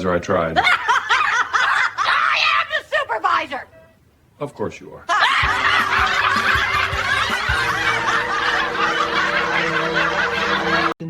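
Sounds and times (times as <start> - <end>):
crowd laughing: 5.1 - 11.0.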